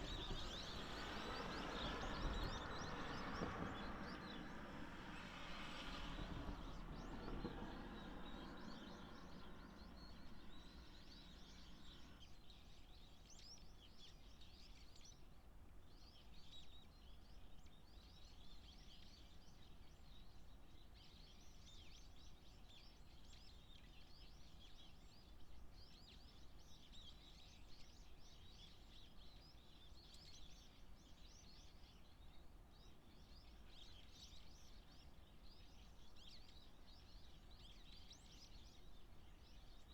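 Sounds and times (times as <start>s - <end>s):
faint low background rumble: 5.4s - 12.3s.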